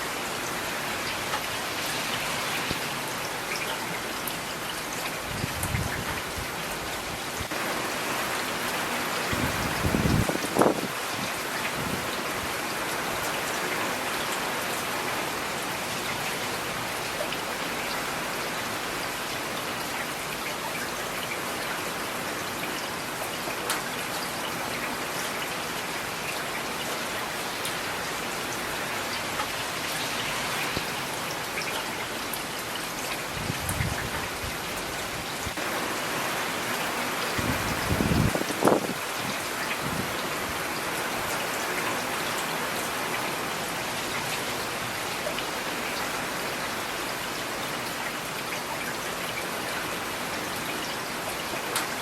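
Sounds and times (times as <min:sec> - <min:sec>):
steady rain hiss: 0:00.0 - 0:52.0.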